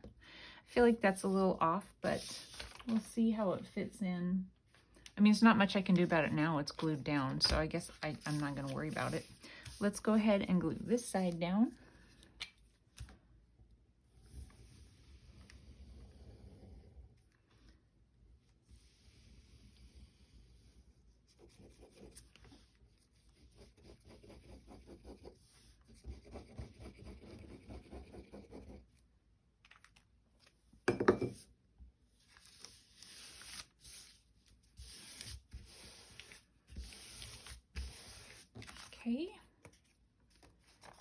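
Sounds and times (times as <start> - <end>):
paper rubbing and rustling: 2.1 - 3.1, 6.9 - 11.3, 32.2 - 39.0, 39.7 - 41.0.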